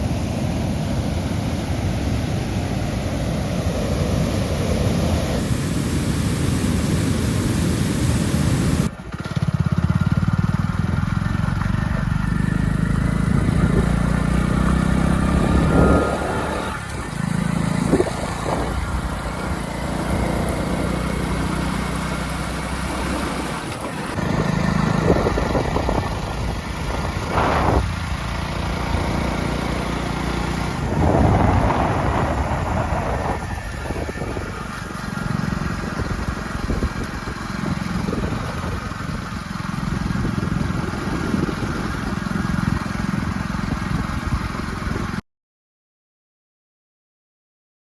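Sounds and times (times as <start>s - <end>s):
motorcycle engine running: 0.0s - 45.2s
loud rushing noise: 13.1s - 38.8s.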